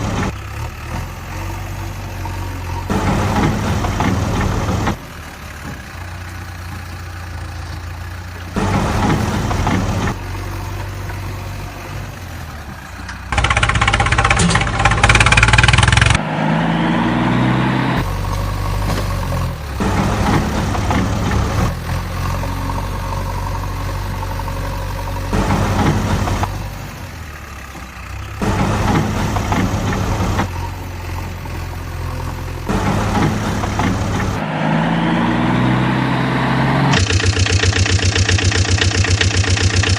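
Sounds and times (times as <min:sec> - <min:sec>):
engine revving: 0:00.0 - 0:05.7, 0:08.5 - 0:12.3, 0:13.2 - 0:27.6, 0:28.3 - 0:39.9
engine idling: 0:00.0 - 0:16.2, 0:36.9 - 0:39.9.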